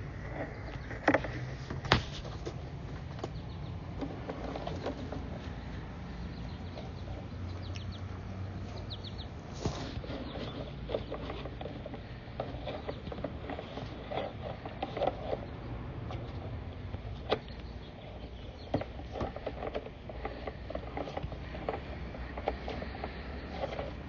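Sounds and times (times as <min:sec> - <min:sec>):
camera cable scraping inside a pipe: 0:00.0 - 0:02.7, 0:04.0 - 0:05.8, 0:09.5 - 0:24.0.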